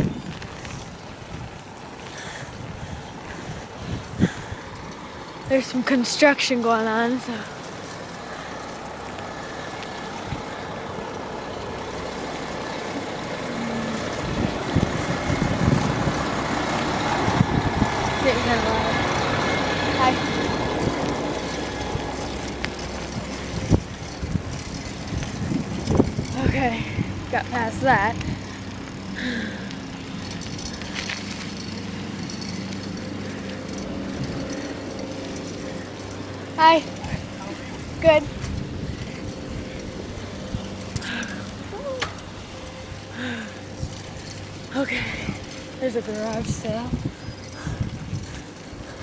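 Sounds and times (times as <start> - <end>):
wind on microphone: 0.0 - 5.6, 9.6 - 29.3, 35.5 - 44.1, 44.9 - 49.0
bicycle rolling on pavement: 0.0 - 49.0
construction machinery engine drone: 7.1 - 49.0
low thumps and rumbles: 8.8 - 49.0.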